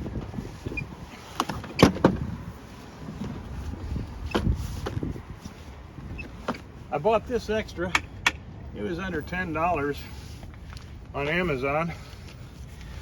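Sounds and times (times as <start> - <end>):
parts knocking and clunking: 7.8 - 8.5.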